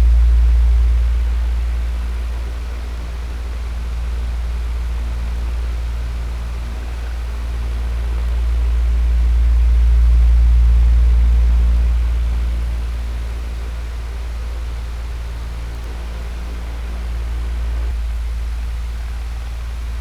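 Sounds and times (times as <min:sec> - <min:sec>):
electric fan running: 0:00.0 - 0:20.0.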